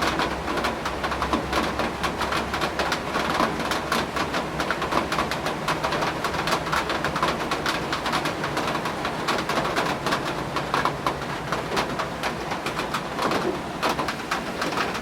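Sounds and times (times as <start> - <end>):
raindrops ticking: 0.0 - 15.0
wind: 0.0 - 15.0.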